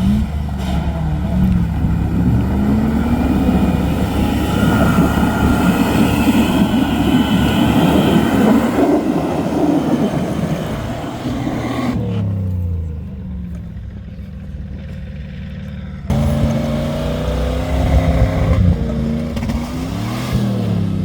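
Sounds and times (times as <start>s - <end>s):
off-road vehicle engine revving: 0.0s - 21.0s
high-pitched whine: 1.3s - 12.0s.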